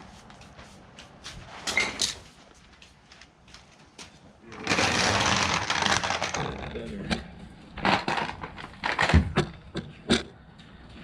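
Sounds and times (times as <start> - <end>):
generator dragged and scraping: 4.5 - 6.9.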